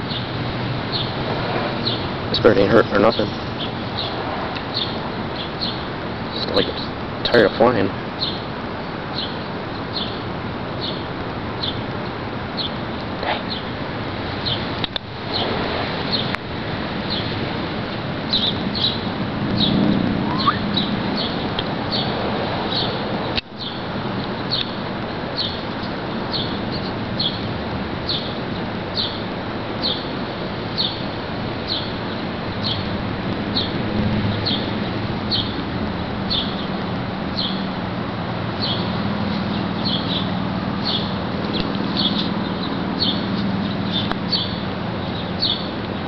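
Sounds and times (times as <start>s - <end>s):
outdoor background hiss: 0.0s - 46.0s
small bird chirping: 1.8s - 6.9s, 18.3s - 23.0s, 28.9s - 29.2s, 38.6s - 45.7s.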